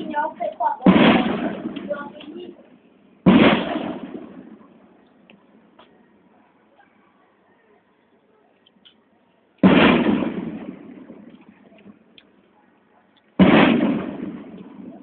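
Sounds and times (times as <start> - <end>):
firecracker bangs echoing: 0.0 - 2.6, 3.2 - 4.8, 9.6 - 11.6, 13.4 - 15.0.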